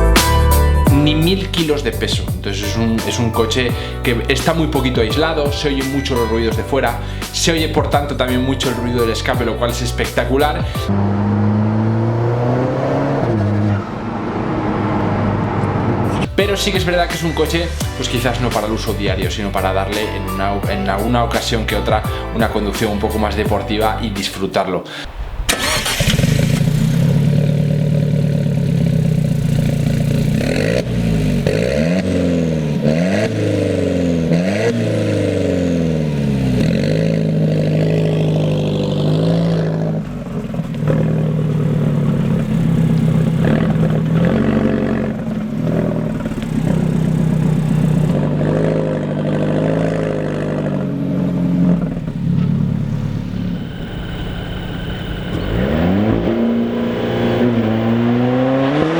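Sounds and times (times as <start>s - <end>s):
car engine accelerating hard: 10.1s - 19.8s, 25.1s - 58.9s
gear changes: 25.1s - 49.4s, 50.2s - 58.9s.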